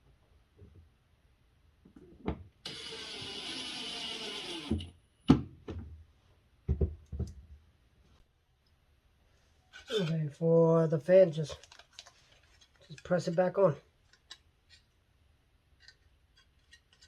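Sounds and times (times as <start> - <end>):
cordless drill driving screw: 2.6 - 5.0.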